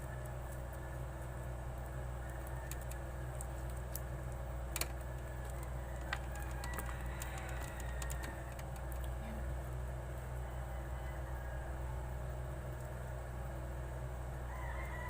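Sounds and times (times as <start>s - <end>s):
small clicks and ticks: 0.0s - 9.2s, 12.7s - 13.0s
steady low hum: 0.0s - 15.0s.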